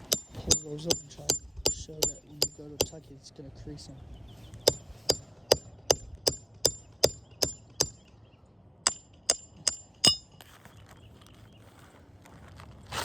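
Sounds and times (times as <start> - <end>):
hammer blows on metal: 4.7 - 8.1.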